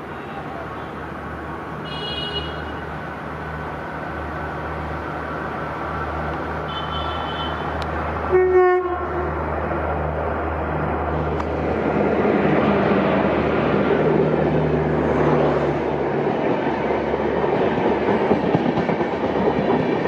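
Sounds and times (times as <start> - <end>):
train low rumble: 7.6 - 20.0
train horn blast: 8.3 - 9.3.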